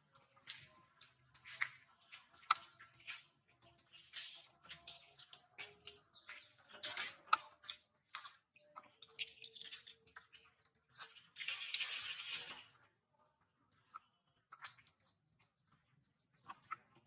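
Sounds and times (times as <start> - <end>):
monkeys rustling and clicking: 3.6 - 10.3.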